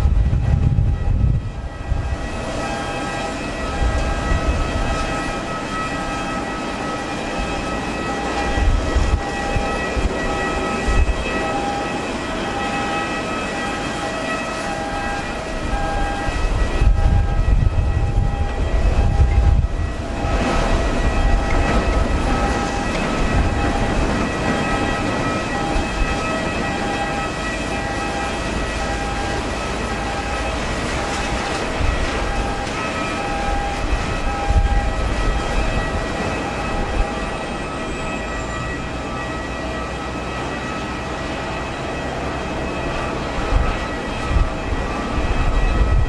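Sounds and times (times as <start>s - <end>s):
jet engines whining: 0.0s - 46.0s
wind buffeting microphone: 0.0s - 46.0s.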